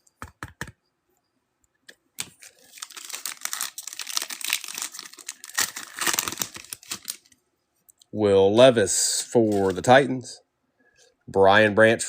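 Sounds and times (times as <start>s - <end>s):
foil wrapper crinkling and tearing: 2.2s - 7.4s.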